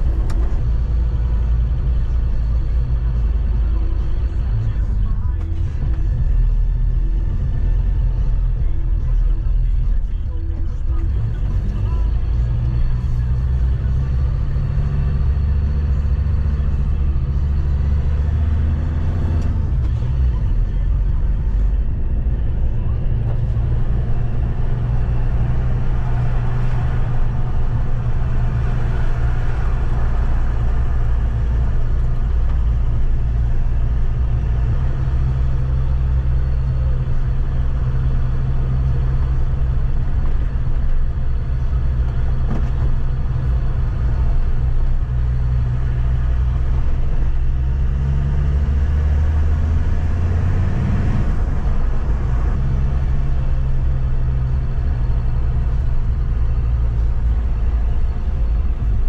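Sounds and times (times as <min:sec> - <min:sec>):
car engine pulling uphill: 0:00.0 - 0:59.0
road noise: 0:00.0 - 0:59.0.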